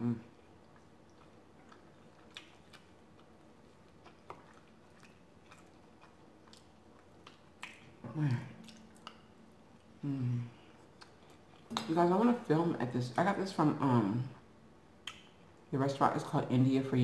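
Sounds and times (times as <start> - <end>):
soft chewing mouth clicks: 0.3 - 10.0, 10.6 - 11.9, 15.0 - 15.4.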